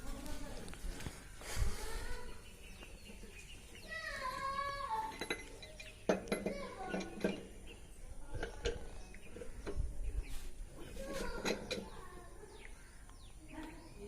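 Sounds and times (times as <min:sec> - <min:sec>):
sharp clinks and knocks: 0:04.9 - 0:07.6.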